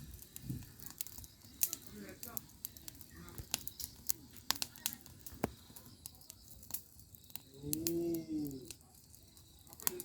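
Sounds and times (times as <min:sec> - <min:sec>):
firewood crackling and popping: 0:00.0 - 0:10.0.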